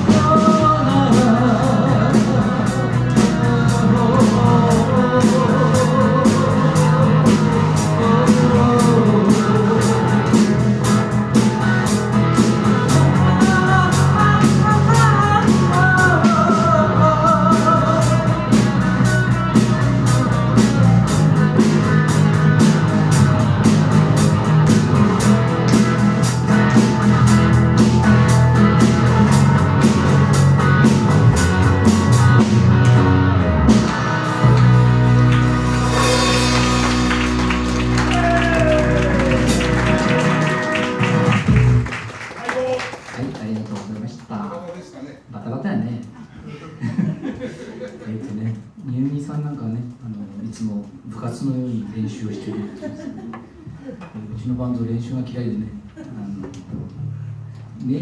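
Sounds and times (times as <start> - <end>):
drum kit with hi-hat beat: 0.0 - 42.0
electric guitar melody: 0.0 - 42.0
bass: 0.0 - 44.4, 54.2 - 58.0.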